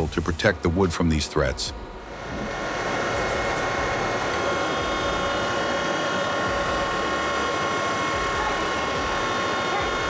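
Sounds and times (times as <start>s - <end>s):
woodworking machine whining: 2.0s - 10.0s.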